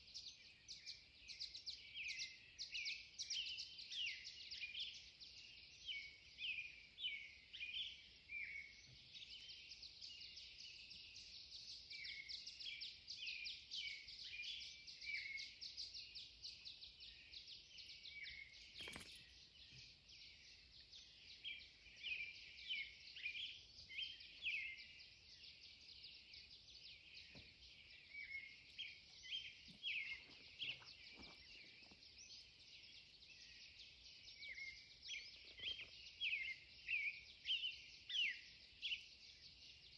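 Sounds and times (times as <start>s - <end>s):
songbirds chirping: 0.0s - 39.9s
brief click: 18.8s - 19.2s.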